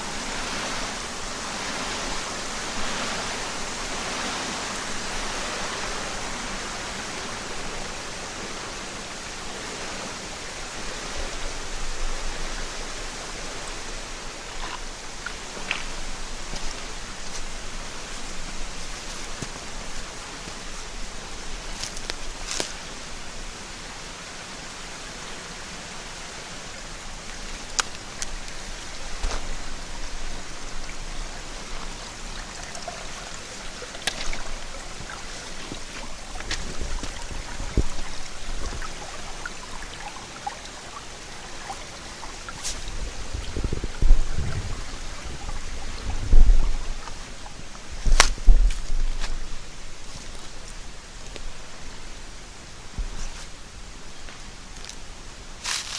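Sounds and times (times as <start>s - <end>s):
stream babbling over rocks: 0.0s - 55.9s
drips and small splashes: 26.8s - 51.6s.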